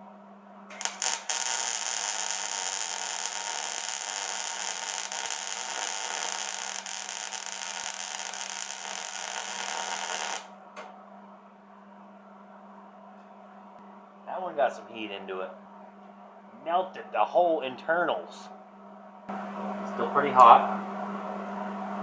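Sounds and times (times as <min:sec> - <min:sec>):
welder arc crackling: 0:00.7 - 0:10.6.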